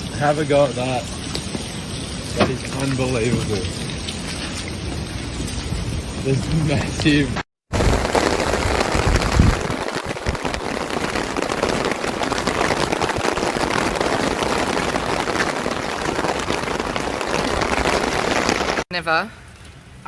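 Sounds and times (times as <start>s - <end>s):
hail clattering on hard surfaces: 7.0s - 18.8s.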